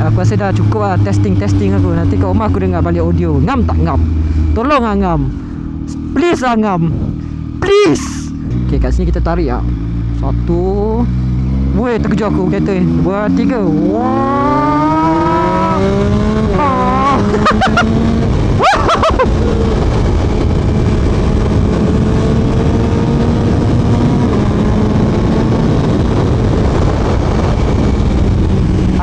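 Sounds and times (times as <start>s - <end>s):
motorcycle engine accelerating: 0.0s - 29.0s
wind rush: 6.7s - 7.7s, 12.7s - 29.0s.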